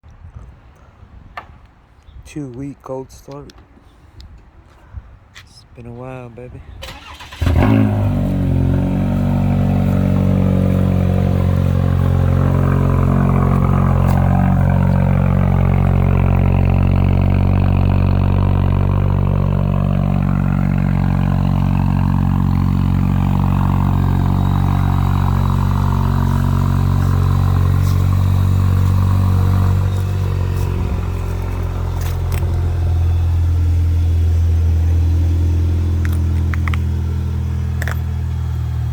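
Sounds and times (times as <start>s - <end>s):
car engine idling: 6.9s - 38.9s.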